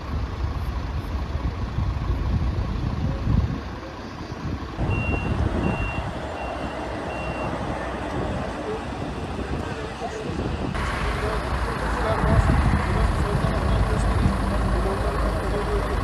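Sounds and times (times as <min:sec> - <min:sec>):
heavy vehicle engine rumbling: 0:00.0 - 0:16.0
reversing alarm beeps: 0:04.8 - 0:07.6.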